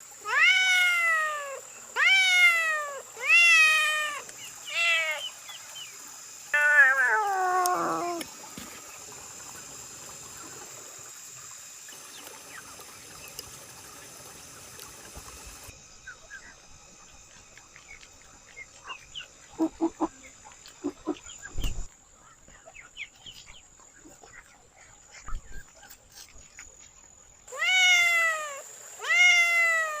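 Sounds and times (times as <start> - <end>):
steady hiss: 0.0 - 21.9
cat meowing: 0.2 - 5.2, 6.6 - 8.2, 27.5 - 30.0.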